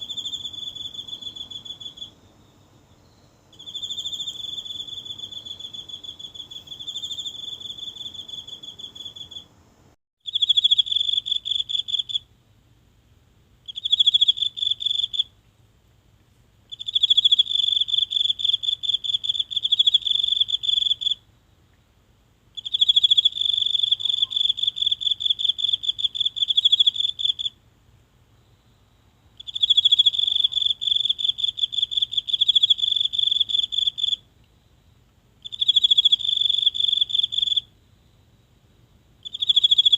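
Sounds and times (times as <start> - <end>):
insect trilling: 0.0 - 9.5, 35.4 - 37.7, 39.2 - 39.9.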